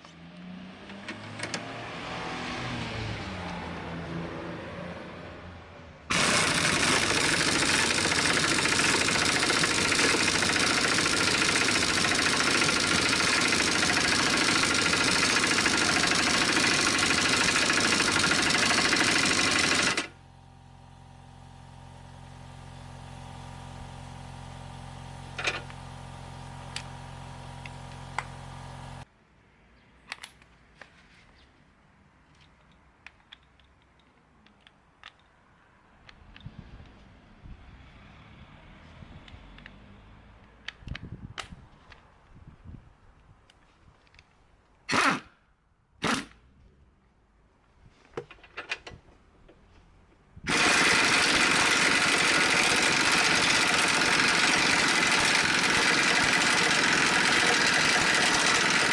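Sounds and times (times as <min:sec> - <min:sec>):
loud steady machine noise: 0:06.1 - 0:20.2, 0:50.5 - 0:58.9.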